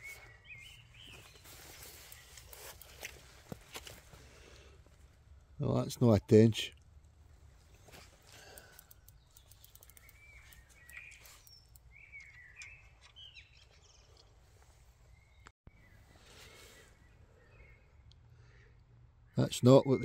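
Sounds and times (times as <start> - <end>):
bird chirping: 0.0 - 3.4, 7.7 - 20.0
light clicks: 7.9 - 14.3.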